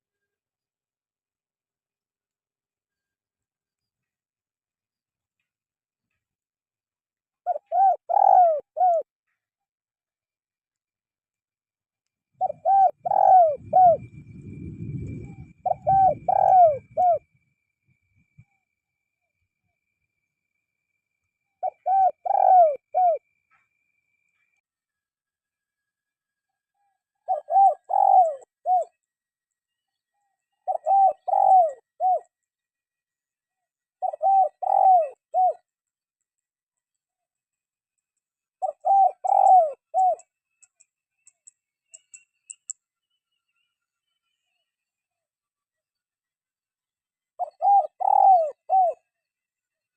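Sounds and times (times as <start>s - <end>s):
dove cooing: 7.4s - 9.1s, 12.4s - 17.3s, 21.6s - 23.3s, 27.2s - 29.0s, 30.6s - 32.3s, 34.0s - 35.7s, 38.6s - 40.3s, 47.4s - 49.1s
low rumble: 13.6s - 15.7s.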